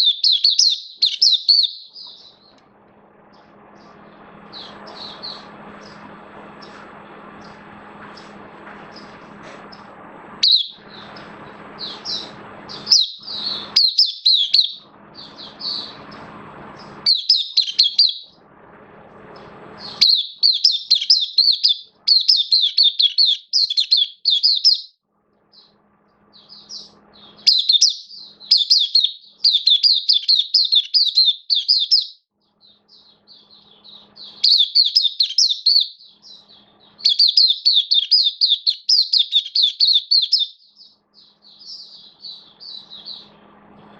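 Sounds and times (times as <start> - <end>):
bird twittering song: 0.0 - 2.6, 3.3 - 6.8, 8.9 - 18.4, 19.3 - 43.4
steady hum: 0.0 - 20.5, 40.6 - 43.9.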